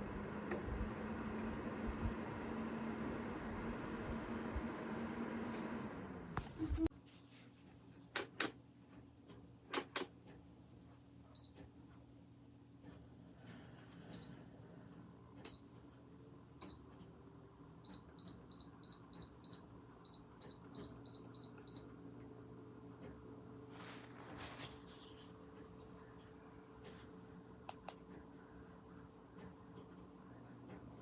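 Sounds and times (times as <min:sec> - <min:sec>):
heater blowing noise: 0:00.0 - 0:06.9
faint low fan hum: 0:00.0 - 0:31.0.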